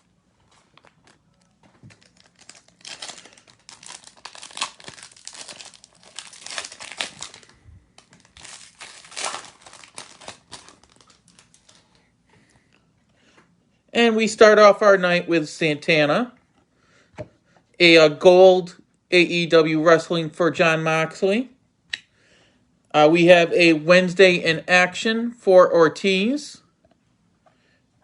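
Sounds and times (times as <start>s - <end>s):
wrapper being torn and crinkled: 0.5s - 12.0s.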